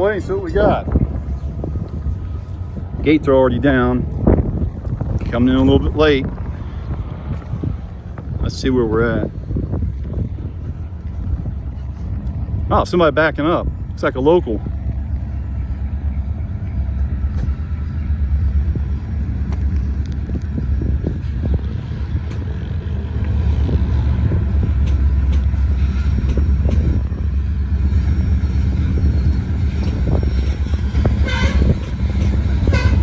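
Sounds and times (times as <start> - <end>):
diesel locomotive rumble: 0.0 - 33.0
train knocks and clanks: 14.6 - 33.0.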